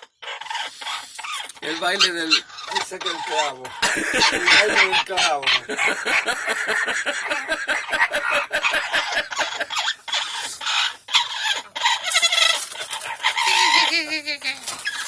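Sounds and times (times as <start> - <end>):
parrot clucking and chattering: 0.0 - 15.0.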